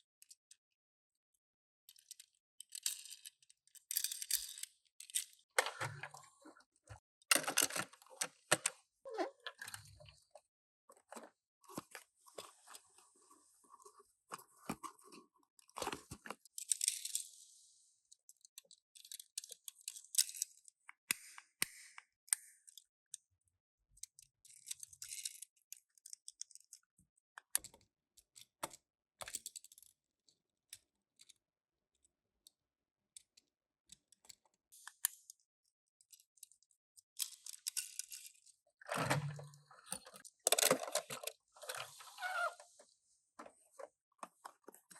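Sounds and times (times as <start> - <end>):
toy cars clicking and tapping: 1.9 - 5.4, 24.0 - 27.8.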